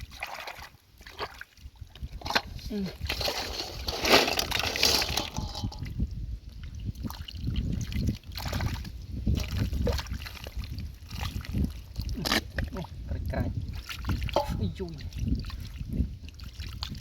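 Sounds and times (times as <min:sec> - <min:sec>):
muddy water sloshing and splashing: 0:00.0 - 0:17.0
hands digging through wet mud: 0:02.7 - 0:05.8.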